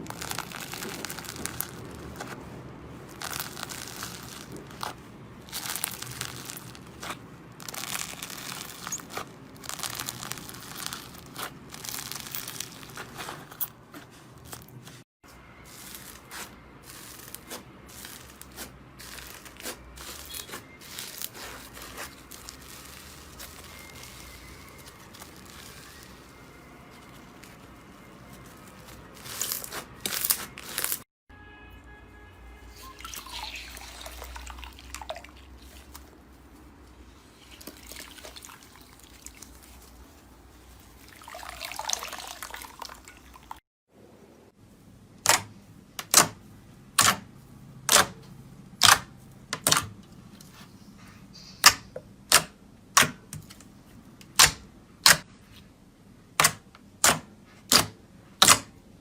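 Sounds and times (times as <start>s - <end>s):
wet slime squelching: 0.0s - 15.0s, 15.6s - 31.0s, 32.7s - 43.6s.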